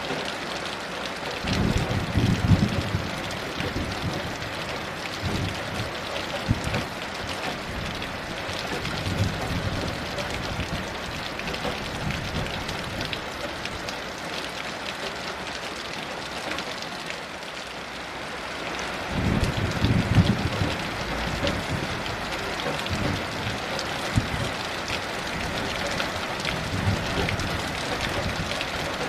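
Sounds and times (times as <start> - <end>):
heavy rain falling: 0.0 - 29.0
distant thunder rumble: 19.2 - 24.7.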